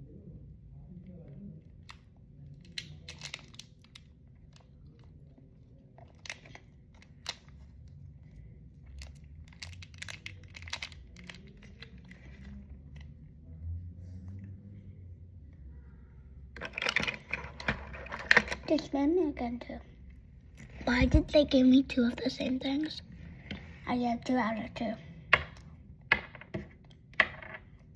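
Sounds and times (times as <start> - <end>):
plastic packaging crinkling and tearing: 8.9 - 12.6.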